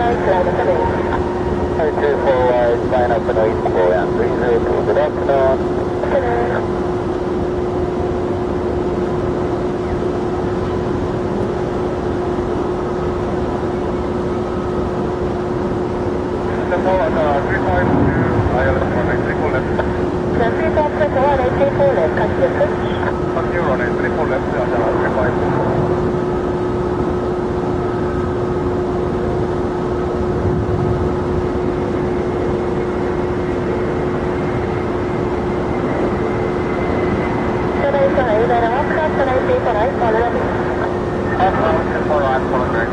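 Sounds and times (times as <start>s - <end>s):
jet engine rushing: 0.0s - 6.7s, 16.2s - 42.9s
constant hum: 0.0s - 42.9s.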